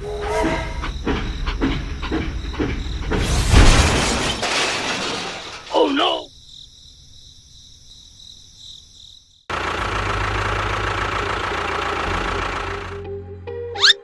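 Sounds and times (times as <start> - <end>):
motor rumbling: 0.0 - 4.2, 9.5 - 13.8.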